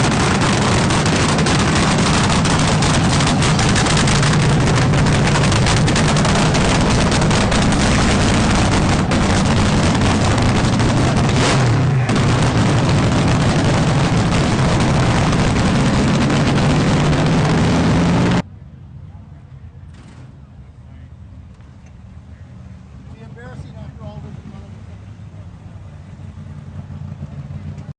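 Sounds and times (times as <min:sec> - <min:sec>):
racing engine at high revs: 0:00.0 - 0:18.4.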